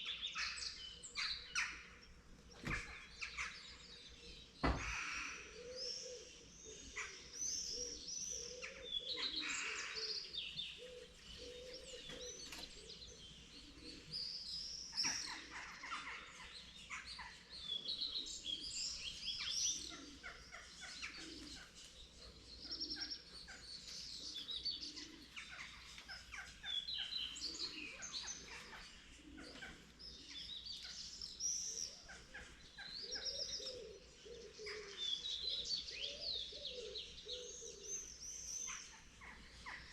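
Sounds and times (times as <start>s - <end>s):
birds chirping and trilling: 0.0s - 39.9s
low cooing: 10.8s - 13.0s.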